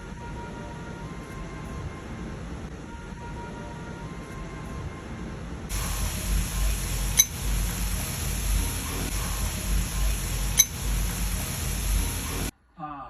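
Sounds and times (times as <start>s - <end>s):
low rumble: 5.7s - 12.5s
steady hiss: 5.7s - 12.5s.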